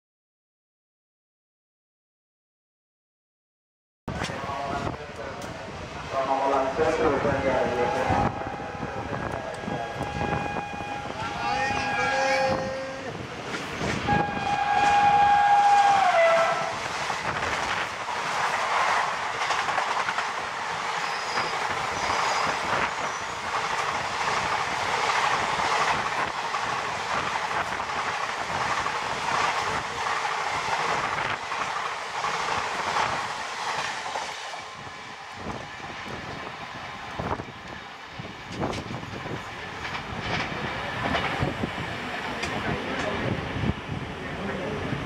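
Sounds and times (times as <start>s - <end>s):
locomotive horn: 7.5s - 12.6s, 14.0s - 16.8s
train wheels clattering over rail joints: 16.9s - 34.5s, 38.4s - 43.2s.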